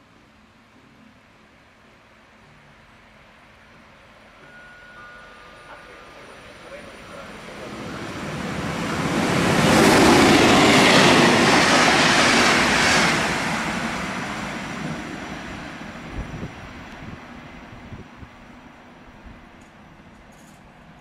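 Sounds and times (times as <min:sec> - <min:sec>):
rush of train noise: 0:00.0 - 0:21.0
train wheels rumbling on rails: 0:05.5 - 0:21.0.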